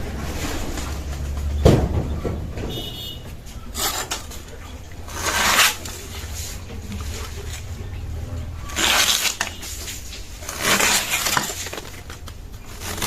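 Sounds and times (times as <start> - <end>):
knife scraping: 3.6 - 7.7, 8.4 - 13.0
knife rasping cut: 3.8 - 4.3, 5.1 - 6.3, 8.7 - 11.9.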